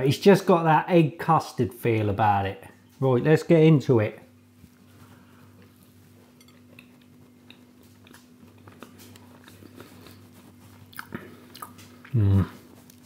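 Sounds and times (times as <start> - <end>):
faint low hum: 0.0 - 13.0
quiet chewing of pastry: 4.4 - 13.0.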